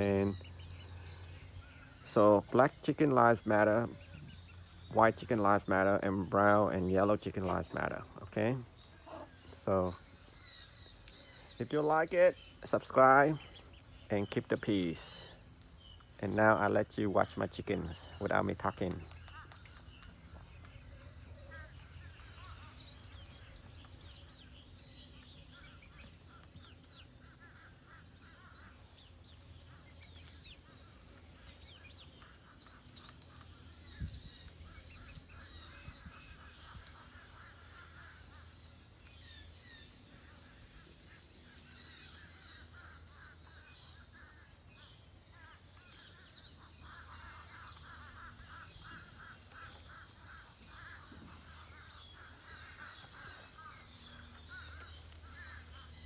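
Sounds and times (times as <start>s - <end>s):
chickens clucking: 0.0s - 39.2s.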